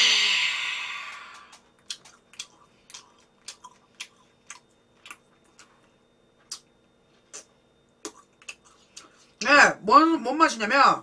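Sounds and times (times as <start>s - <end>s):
wet mouth chewing clicks: 1.4s - 6.7s, 7.3s - 9.1s.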